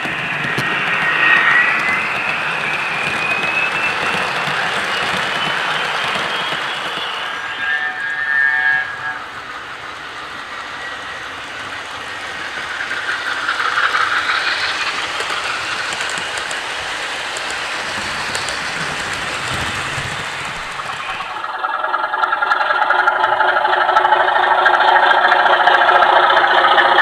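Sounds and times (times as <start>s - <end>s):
locomotive engine sound: 0.0s - 27.0s
model train wheels on track: 0.0s - 27.0s
faint clicks over rails: 9.9s - 21.5s.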